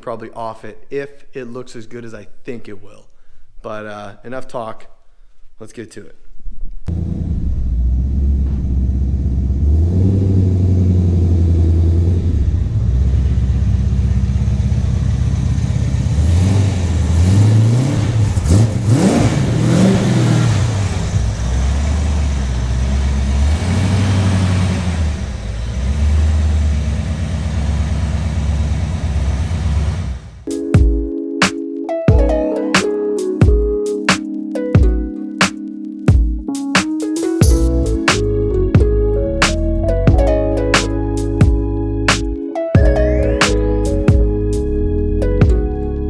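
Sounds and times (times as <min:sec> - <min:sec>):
car engine revving: 0:06.9 - 0:30.5.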